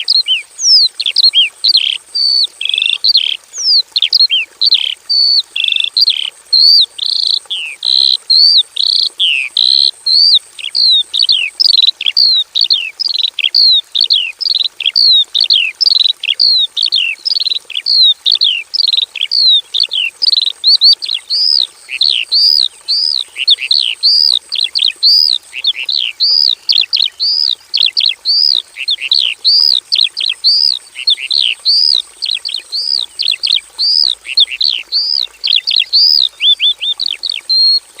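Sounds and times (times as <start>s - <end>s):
bird singing slurred whistles: 17.8s - 37.8s.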